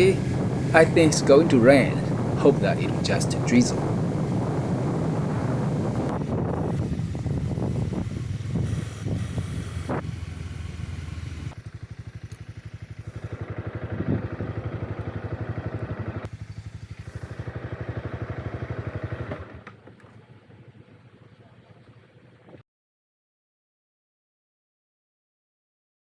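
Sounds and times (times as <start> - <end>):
wind noise: 0.0 - 10.4
motorcycle engine: 0.0 - 21.4.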